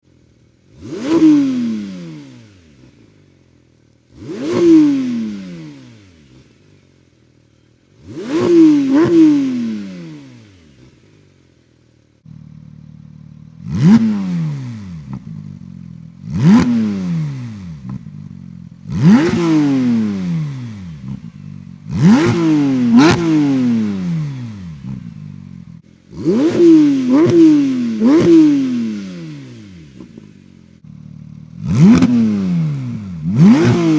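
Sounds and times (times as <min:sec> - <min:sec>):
car engine idling: 0:00.0 - 0:00.9, 0:02.3 - 0:04.4, 0:05.5 - 0:08.2, 0:09.0 - 0:19.2, 0:20.0 - 0:26.4, 0:28.9 - 0:33.5
car engine revving in throttle blips: 0:00.7 - 0:03.1, 0:04.1 - 0:06.6, 0:08.0 - 0:11.1, 0:12.3 - 0:33.9.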